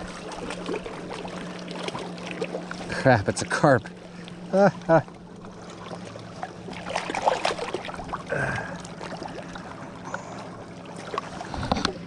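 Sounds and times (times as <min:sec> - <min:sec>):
water splashing and dripping: 0:05.6 - 0:09.4.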